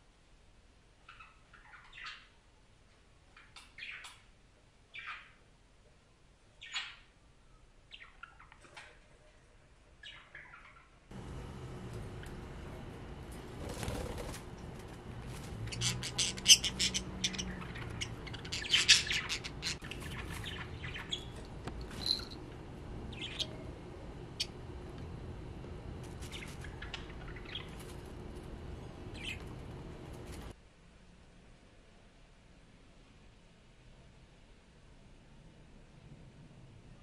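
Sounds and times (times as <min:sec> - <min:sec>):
budgerigars chirping: 0:15.7 - 0:21.4, 0:23.1 - 0:23.6, 0:26.2 - 0:28.0, 0:29.1 - 0:29.7.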